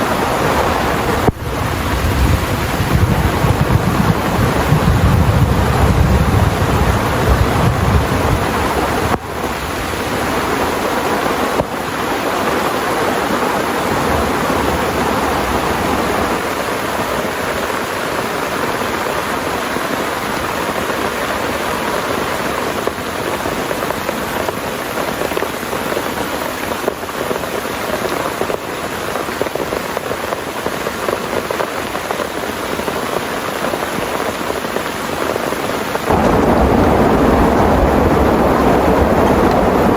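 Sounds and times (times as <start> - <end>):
thunder rumbling: 0.0 - 17.9, 36.0 - 39.9
heavy rain pouring: 0.0 - 39.9.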